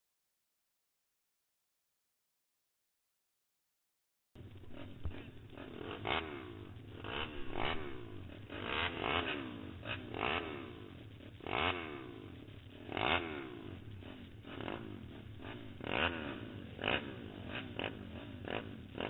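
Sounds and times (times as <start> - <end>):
pit bike engine revving: 4.4 - 19.0.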